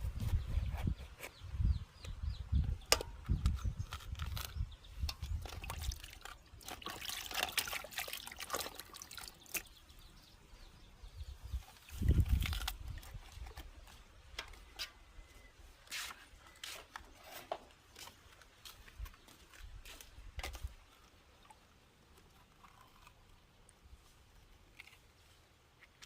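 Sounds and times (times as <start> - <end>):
water trickling and splashing: 5.1 - 10.1.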